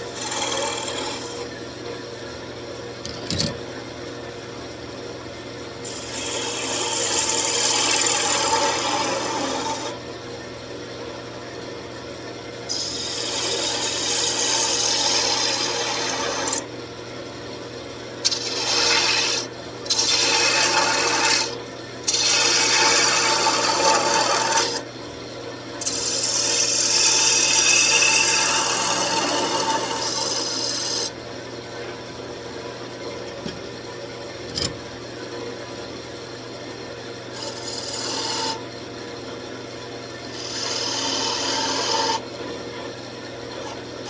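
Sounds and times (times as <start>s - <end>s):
turning tool scraping wood: 0.0s - 1.5s, 3.0s - 3.6s, 5.9s - 9.9s, 12.7s - 16.6s, 18.3s - 24.8s, 25.8s - 31.2s, 33.2s - 34.8s, 37.3s - 38.6s, 40.3s - 42.2s
wood lathe humming: 0.0s - 1.5s, 12.7s - 16.6s, 18.3s - 24.8s, 25.9s - 31.2s, 37.3s - 38.6s, 40.3s - 42.2s.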